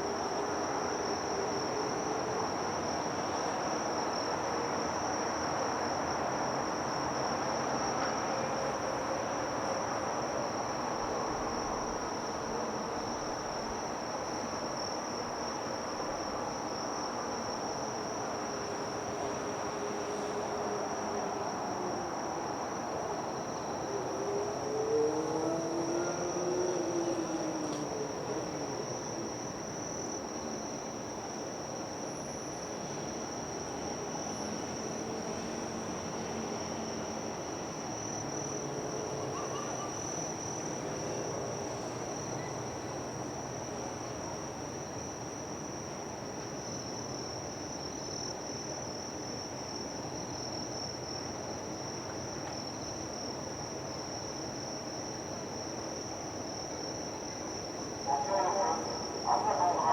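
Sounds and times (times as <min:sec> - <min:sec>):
insects trilling: 0:13.0 - 0:45.9, 0:46.6 - 0:59.9.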